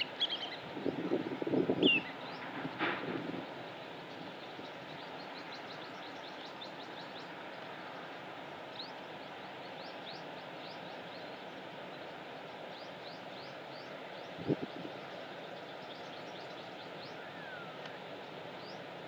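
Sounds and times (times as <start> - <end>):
small birds chirping: 0.0 - 0.6
outdoor background noise: 0.0 - 19.0.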